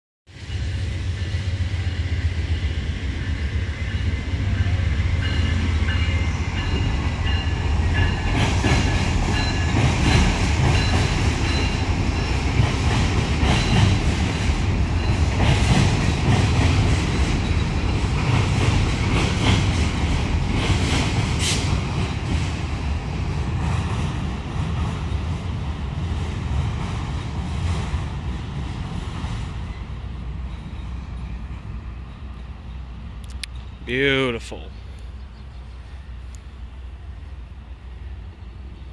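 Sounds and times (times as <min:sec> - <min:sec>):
train rumbling over bridge: 0:00.3 - 0:38.9
wheels clacking over rail joints: 0:05.9 - 0:22.6.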